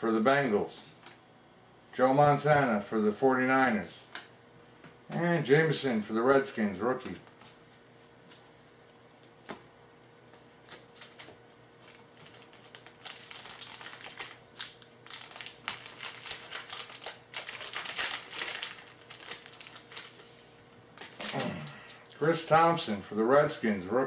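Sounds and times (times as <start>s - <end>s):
wrapper crinkling: 10.7s - 20.3s, 21.0s - 21.7s.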